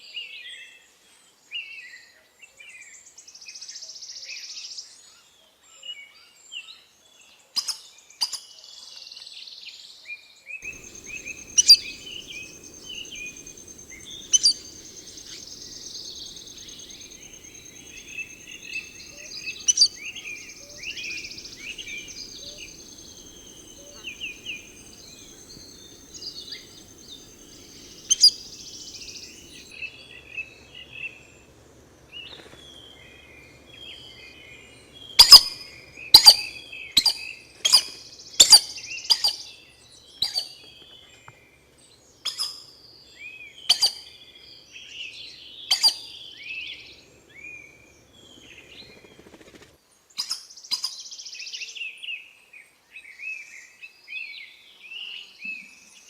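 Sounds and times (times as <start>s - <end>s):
birds chirping: 10.6s - 29.7s
thin steady high tone: 10.6s - 29.7s
loud sharp clipped bird notes: 10.7s - 29.6s.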